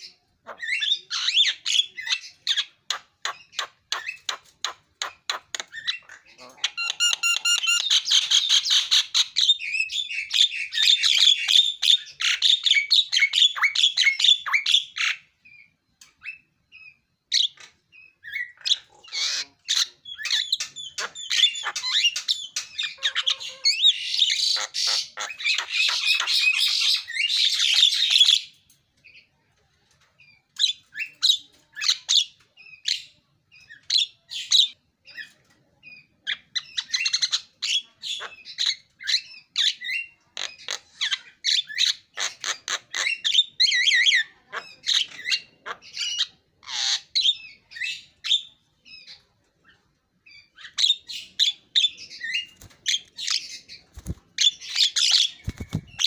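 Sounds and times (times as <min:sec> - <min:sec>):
bird chattering and squawking: 0:00.0 - 0:15.3, 0:17.3 - 0:28.5, 0:36.2 - 0:56.0.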